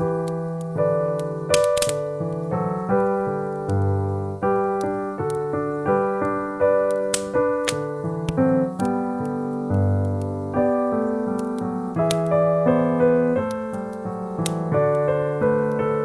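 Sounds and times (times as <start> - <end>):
slow piano music: 0.0 - 16.0
faint sharp clicks: 6.2 - 9.4, 10.0 - 10.4, 11.2 - 12.4, 13.4 - 15.9.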